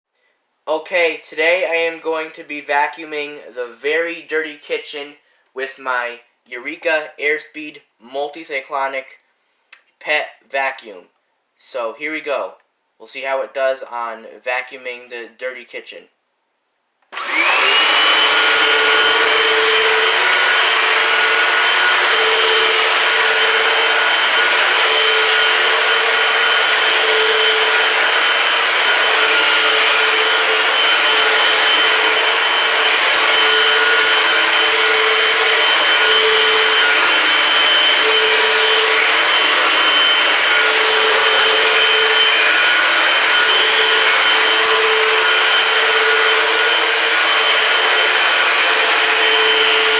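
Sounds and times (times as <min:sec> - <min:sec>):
vacuum cleaner motor whine: 0:17.1 - 0:49.9.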